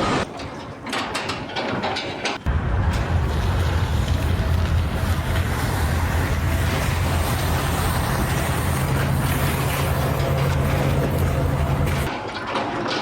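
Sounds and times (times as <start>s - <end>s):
heavy machinery rumble: 2.5s - 12.2s.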